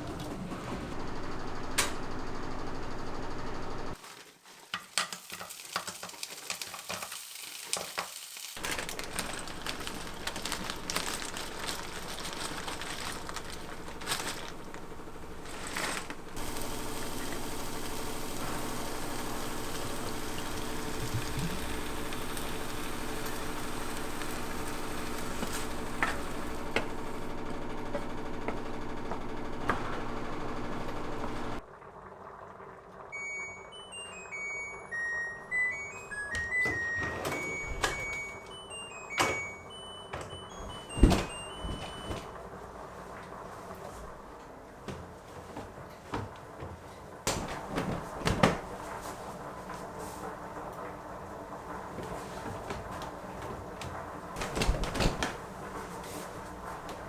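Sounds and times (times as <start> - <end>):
food sizzling in a pan: 4.0 - 8.6, 16.4 - 27.2.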